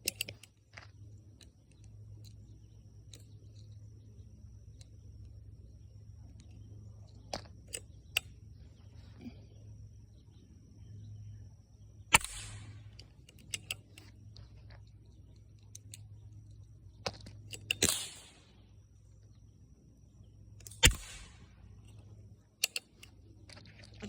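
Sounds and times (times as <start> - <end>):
light metallic clicks: 0.0 - 0.6, 1.4 - 3.9, 12.1 - 18.6, 20.6 - 23.7
rifle shots with echo: 12.1 - 13.0, 17.7 - 18.6, 20.7 - 21.6.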